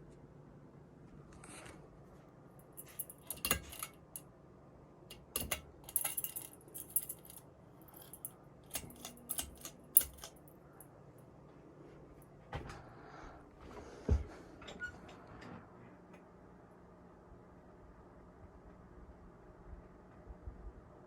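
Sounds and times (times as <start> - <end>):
metallic clinks and rattles: 2.6 - 4.2, 5.1 - 10.8.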